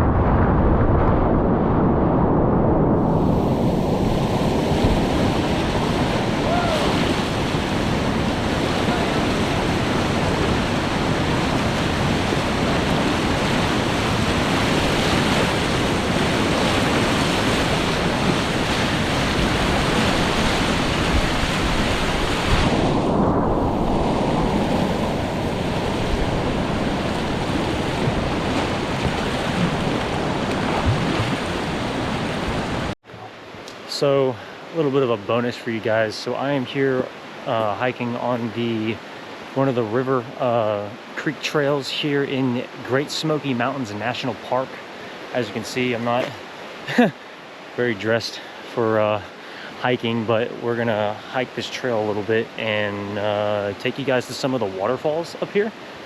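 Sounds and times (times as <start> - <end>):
wind buffeting microphone: 0.0 - 33.0
whitewater rapids rushing: 4.1 - 23.0.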